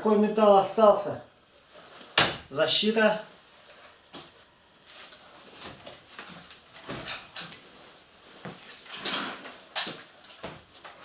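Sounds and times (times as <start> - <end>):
handling knocks and rustles: 4.9 - 11.0.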